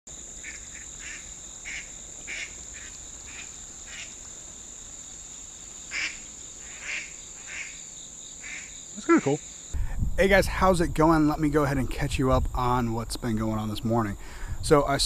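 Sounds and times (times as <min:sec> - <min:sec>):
high insect drone: 0:00.1 - 0:14.6.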